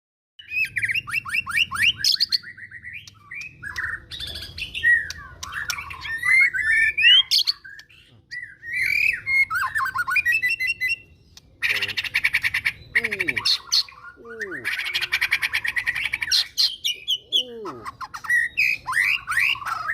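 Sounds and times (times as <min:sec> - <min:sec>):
songbird whistling and trilling: 0:00.4 - 0:19.9
harsh rattling bird call: 0:11.6 - 0:16.9.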